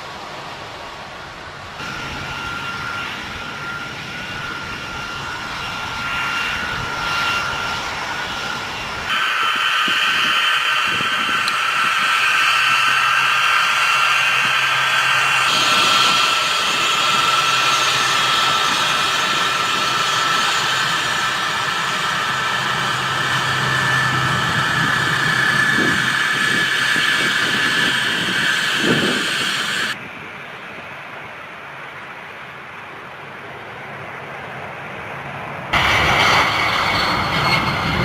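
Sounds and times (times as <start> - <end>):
aircraft engines whining and roaring: 0.0 - 38.0.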